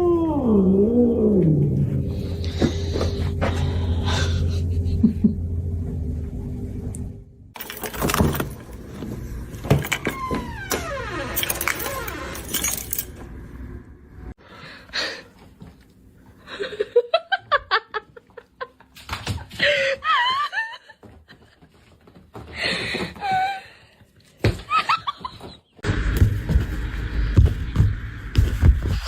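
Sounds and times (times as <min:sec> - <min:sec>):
person laughing in bursts: 0:04.2 - 0:05.5, 0:16.5 - 0:19.0, 0:19.6 - 0:21.1, 0:24.6 - 0:25.8.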